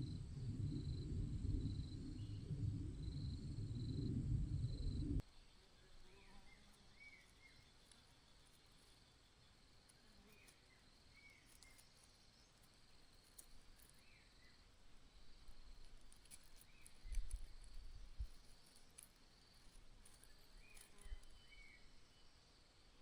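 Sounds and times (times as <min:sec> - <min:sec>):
low thumps: 0:00.0 - 0:05.2
faint rustling clicks: 0:15.6 - 0:21.7.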